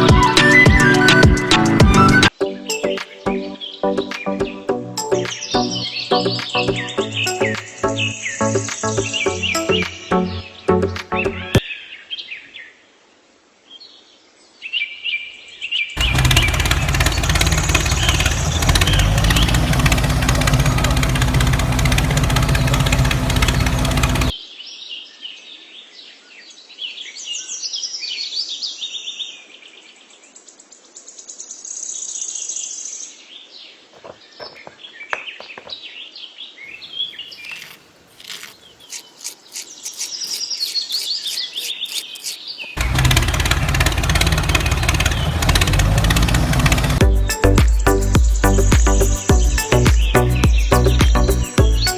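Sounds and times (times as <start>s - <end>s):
birds chirping: 2.0s - 11.7s, 33.7s - 43.0s, 46.9s - 51.9s
engine-like droning: 16.0s - 24.3s, 42.8s - 47.2s.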